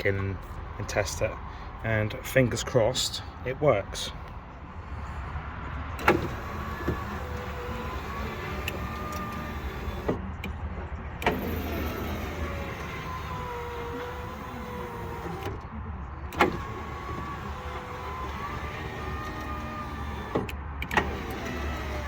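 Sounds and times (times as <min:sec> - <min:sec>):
electric window motor whine: 0:06.0 - 0:10.3, 0:11.2 - 0:15.6, 0:16.3 - 0:22.0
window motor clicks: 0:06.0 - 0:10.3, 0:11.2 - 0:15.6, 0:16.3 - 0:22.0.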